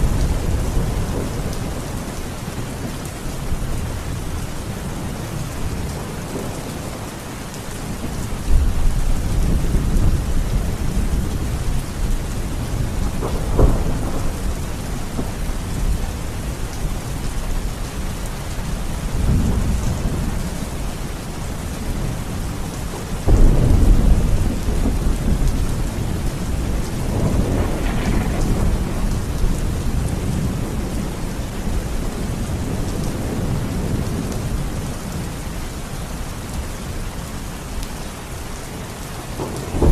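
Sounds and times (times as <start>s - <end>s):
steady rain: 0.0s - 39.9s
thunder rolling: 12.5s - 16.4s, 23.2s - 34.2s, 39.4s - 39.9s
sharp thunder crack: 26.6s - 30.9s, 39.4s - 39.9s.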